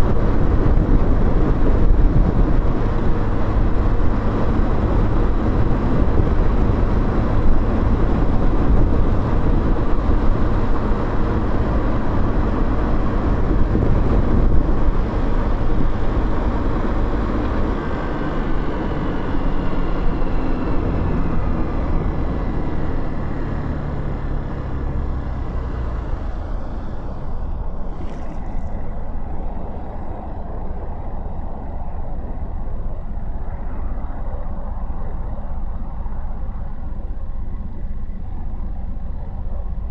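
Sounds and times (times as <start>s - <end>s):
wind rush: 0.0s - 37.6s.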